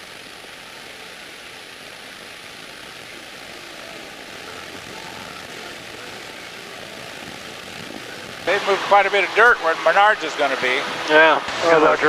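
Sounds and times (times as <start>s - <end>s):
propeller airplane engine drone: 0.0s - 12.0s.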